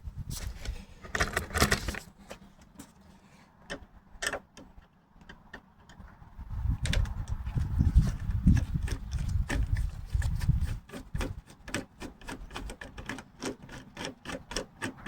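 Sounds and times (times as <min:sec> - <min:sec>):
door hardware and tools handled: 0:00.4 - 0:03.0, 0:06.8 - 0:15.0.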